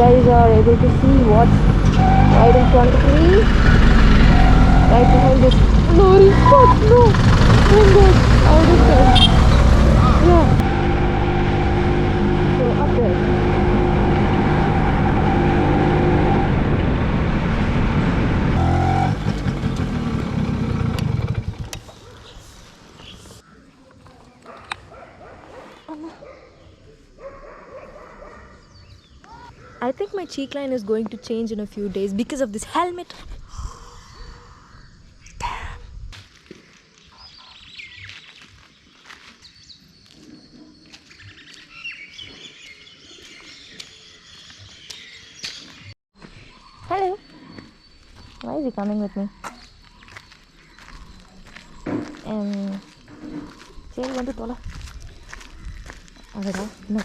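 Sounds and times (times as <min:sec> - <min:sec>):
birds chirping and whistling: 0:00.0 - 0:10.6, 0:36.7 - 0:57.0
two-stroke motorcycle engine: 0:00.0 - 0:14.4, 0:18.6 - 0:21.9.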